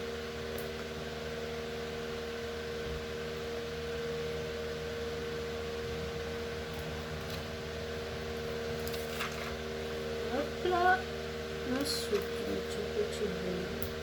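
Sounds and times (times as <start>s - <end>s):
electric fan whooshing: 0.0s - 14.0s
steady hum: 0.0s - 14.0s.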